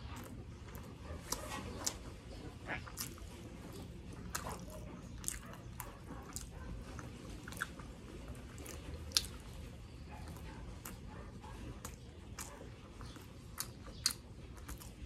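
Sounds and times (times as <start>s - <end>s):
close chewing: 0.0s - 15.0s
wet mouth clicks and lip smacks: 8.6s - 9.5s, 13.5s - 15.0s.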